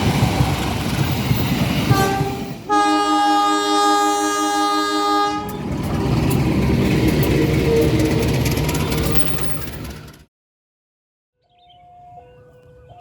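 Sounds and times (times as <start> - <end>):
locomotive rumbling past: 0.0 - 10.3
locomotive air horn blast: 1.9 - 6.2.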